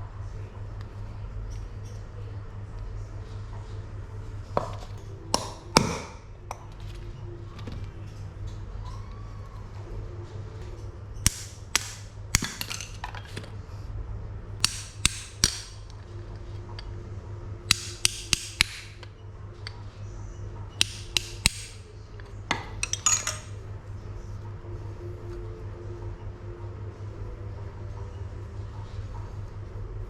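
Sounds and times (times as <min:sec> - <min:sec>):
steady low hum: 0:00.0 - 0:30.0
hammer striking metal: 0:05.3 - 0:06.3, 0:11.2 - 0:13.0, 0:14.6 - 0:15.9, 0:17.7 - 0:19.8, 0:20.7 - 0:21.8.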